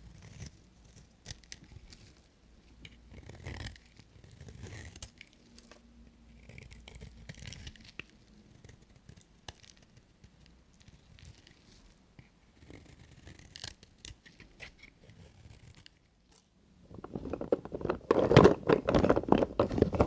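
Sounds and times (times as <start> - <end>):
knife cutting bar soap: 0.0 - 5.6, 6.3 - 16.4.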